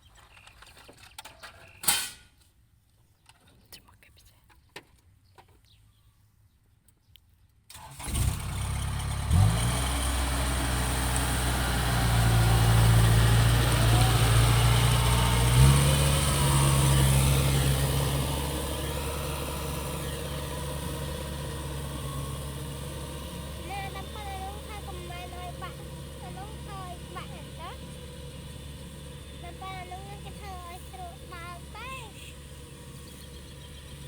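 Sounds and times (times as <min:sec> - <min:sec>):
tractor engine running: 0:07.7 - 0:34.0.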